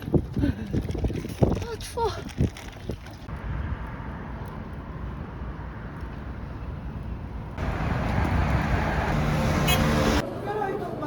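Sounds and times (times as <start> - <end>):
wind on microphone: 0.0 - 3.8
traffic: 1.4 - 11.0.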